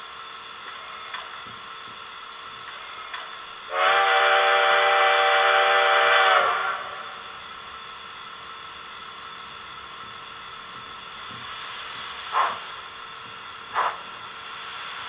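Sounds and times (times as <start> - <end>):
model locomotive horn: 3.7 - 7.3.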